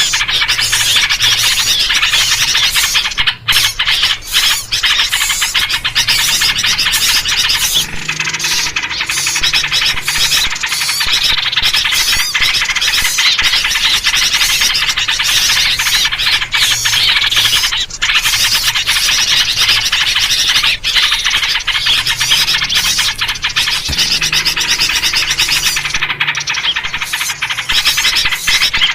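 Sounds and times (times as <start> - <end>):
many small birds chattering: 0.0 - 28.9.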